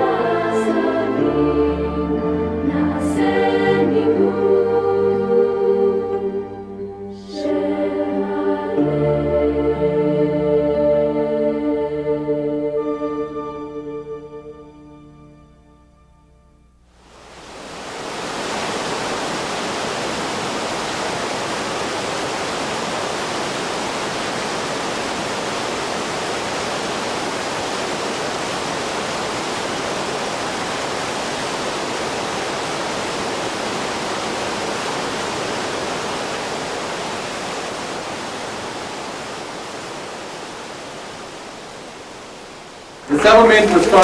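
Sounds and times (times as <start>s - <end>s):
steady rushing noise: 17.0s - 44.0s.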